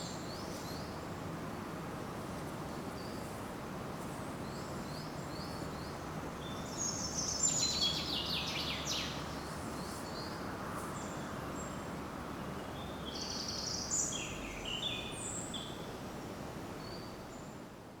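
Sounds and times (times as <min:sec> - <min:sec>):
forest background hiss: 0:00.0 - 0:18.0
songbirds singing: 0:04.5 - 0:10.4, 0:12.6 - 0:15.9.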